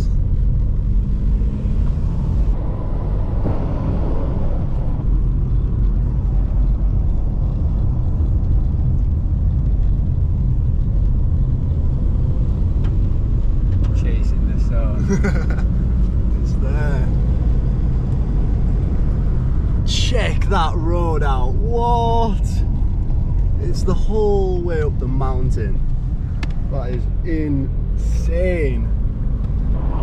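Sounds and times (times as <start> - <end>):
car driving on rough road: 0.0 - 30.0.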